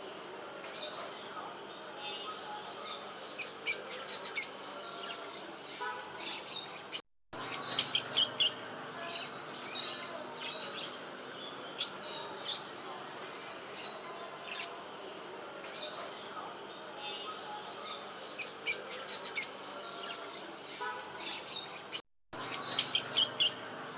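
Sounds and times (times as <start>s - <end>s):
pet birds chirping: 2.1s - 12.7s, 17.0s - 23.8s.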